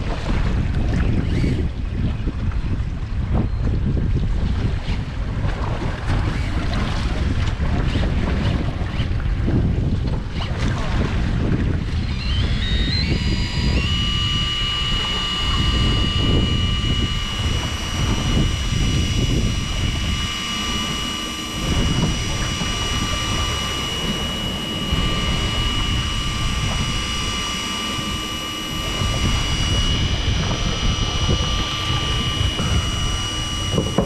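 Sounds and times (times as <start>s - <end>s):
wind buffeting microphone: 0.0s - 34.0s
boat engine speeding up: 10.5s - 34.0s.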